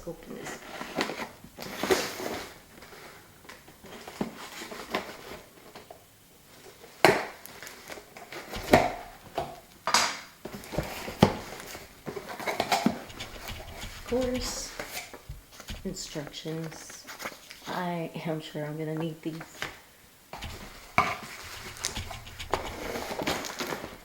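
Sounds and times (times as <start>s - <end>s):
cardboard packaging rustling: 10.5s - 17.5s, 20.4s - 24.0s.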